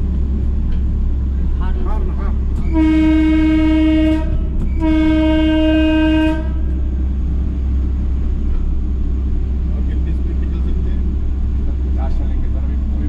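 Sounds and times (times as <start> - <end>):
train engine running: 0.0 - 13.0
train horn blasts: 2.6 - 6.8.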